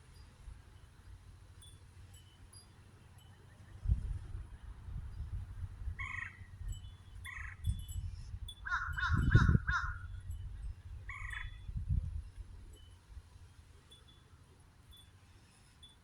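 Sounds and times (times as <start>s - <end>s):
birds calling harshly: 6.0s - 6.5s, 7.2s - 7.7s, 8.6s - 10.2s, 11.1s - 11.6s.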